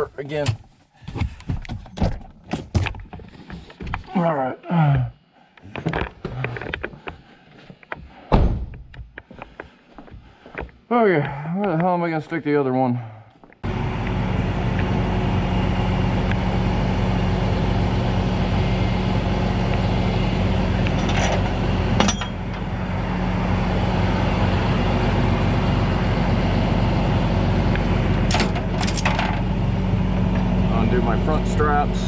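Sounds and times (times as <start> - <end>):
truck engine running: 13.6 - 32.0.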